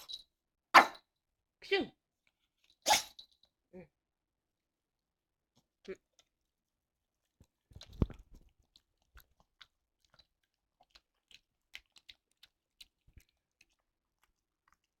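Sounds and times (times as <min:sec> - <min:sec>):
dog bark: 0:00.8 - 0:01.0
dog chewing clicks: 0:07.4 - 0:14.9.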